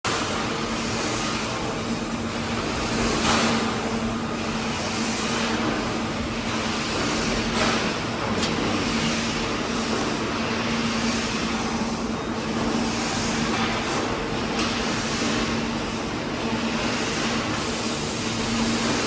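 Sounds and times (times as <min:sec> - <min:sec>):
engine hum: 0:07.8 - 0:10.6.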